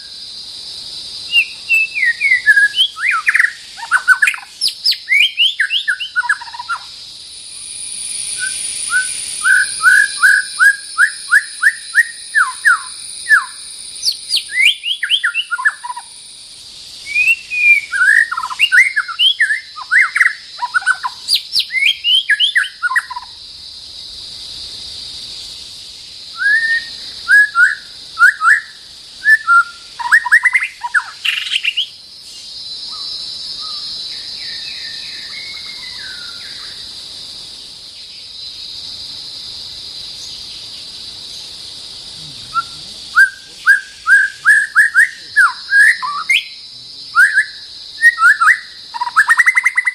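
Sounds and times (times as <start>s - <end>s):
bird singing whistled notes: 1.2s - 6.9s, 8.3s - 16.1s, 16.9s - 23.4s, 26.3s - 36.9s, 42.5s - 49.9s.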